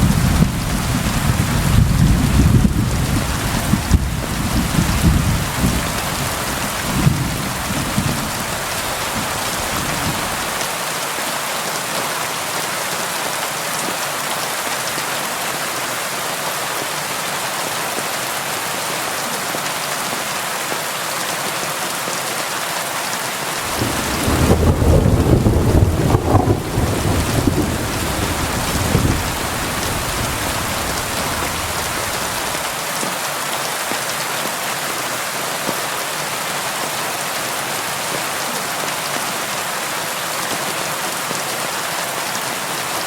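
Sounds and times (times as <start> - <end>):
rolling thunder: 0.0 - 10.4, 23.6 - 32.6
steady rain hiss: 0.0 - 22.3, 22.9 - 43.0.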